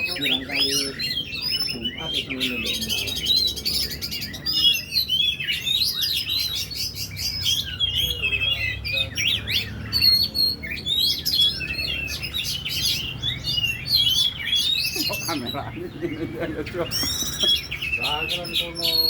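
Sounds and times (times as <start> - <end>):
songbird singing whistles and trills: 0.0 - 19.0.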